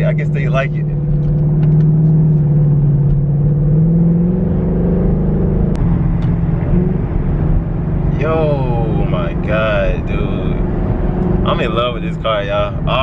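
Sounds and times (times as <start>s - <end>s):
car engine drone: 0.0s - 13.0s.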